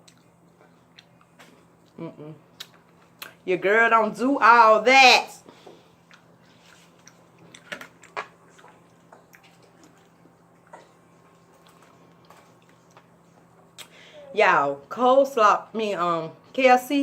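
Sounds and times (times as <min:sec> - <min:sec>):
person chewing: 0:00.0 - 0:03.4, 0:05.8 - 0:14.0.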